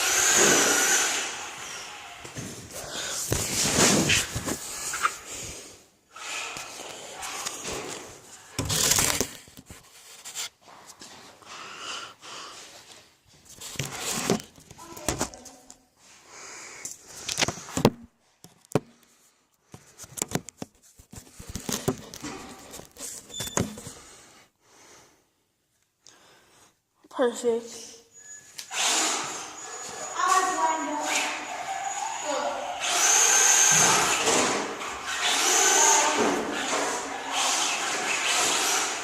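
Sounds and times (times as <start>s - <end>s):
rc car motor and tyre noise: 0.0s - 2.4s, 6.1s - 7.9s, 28.7s - 39.0s.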